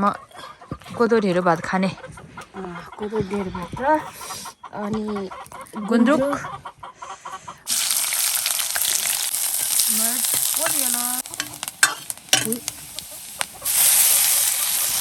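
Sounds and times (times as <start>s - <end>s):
food sizzling in a pan: 7.7s - 15.0s.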